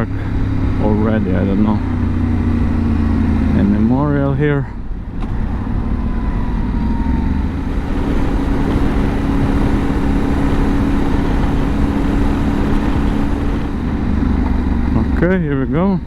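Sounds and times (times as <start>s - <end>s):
low wind rumble: 0.0s - 16.0s
motorcycle engine running: 0.0s - 16.0s.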